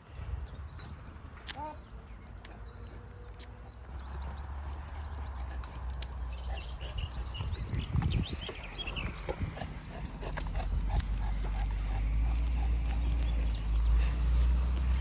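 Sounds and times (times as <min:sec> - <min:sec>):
dog snuffling and breathing: 0:04.1 - 0:15.0.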